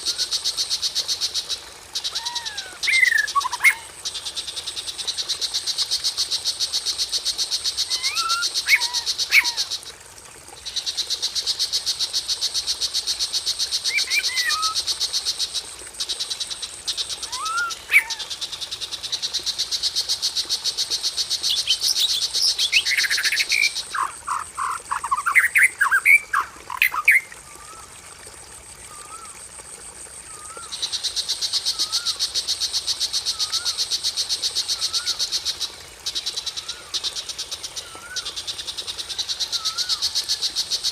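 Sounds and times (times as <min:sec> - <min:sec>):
songbird notes: 0:39.1 - 0:40.0.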